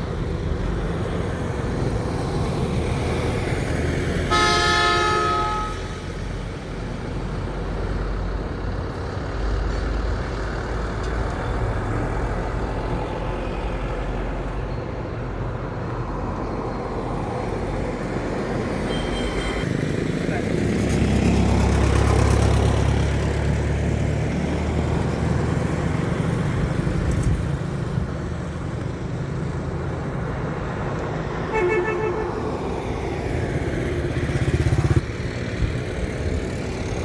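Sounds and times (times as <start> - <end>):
road traffic: 0.0 - 37.0
truck engines rumbling: 0.0 - 37.0
vehicle horn honking: 4.3 - 6.2, 18.9 - 19.7, 31.5 - 32.5.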